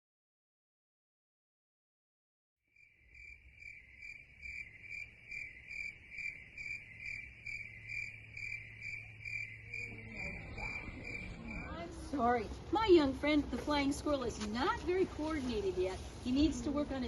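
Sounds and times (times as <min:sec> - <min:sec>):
crickets chirping: 0:02.7 - 0:12.4
low steady hum: 0:06.0 - 0:17.0.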